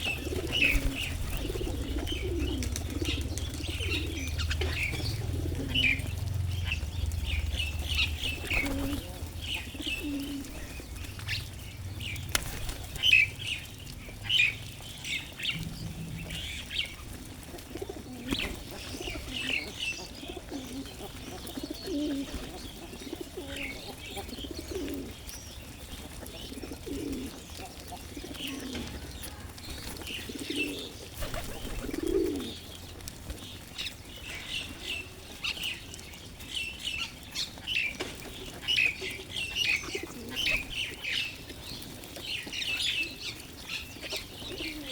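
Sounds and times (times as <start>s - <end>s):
wings flapping: 0.0s - 5.8s, 7.9s - 11.5s, 12.1s - 13.6s, 28.6s - 32.5s
pigeons cooing: 0.0s - 44.9s
small birds chirping: 0.0s - 44.9s.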